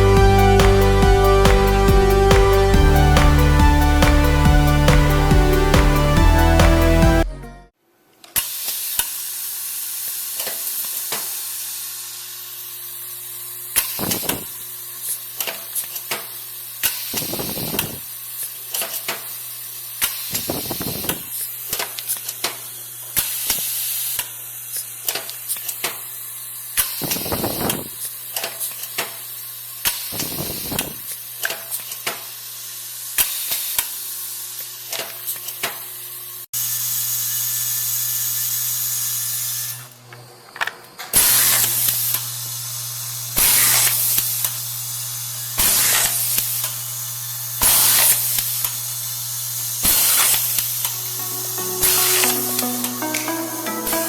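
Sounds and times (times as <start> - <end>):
hiss: 8.4 - 39.8, 41.2 - 46.9, 47.6 - 48.9, 49.5 - 50.9.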